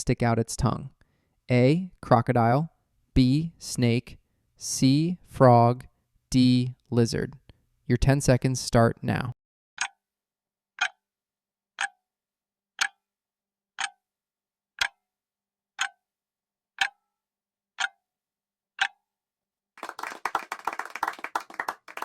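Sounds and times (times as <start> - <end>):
clock ticking: 10.8 - 11.0, 11.8 - 12.0, 12.8 - 13.0, 13.8 - 14.0, 14.8 - 15.0, 15.8 - 16.0, 16.8 - 17.0, 17.8 - 18.0, 18.8 - 19.0.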